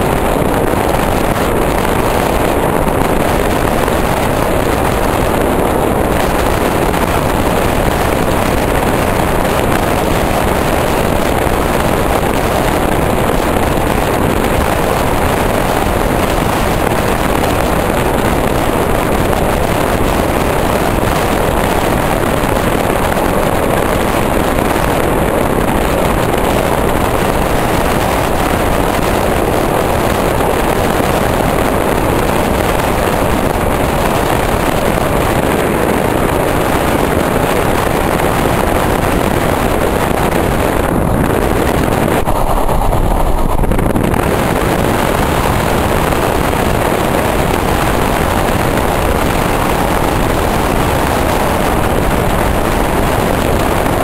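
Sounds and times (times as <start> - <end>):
wind blowing on microphone: 0.0 - 54.0
electric train rushing: 40.3 - 47.4.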